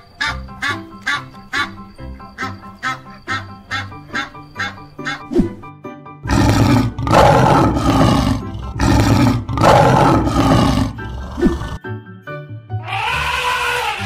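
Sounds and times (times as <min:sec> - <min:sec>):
light background music: 0:00.0 - 0:14.0
lion roaring: 0:06.2 - 0:11.8.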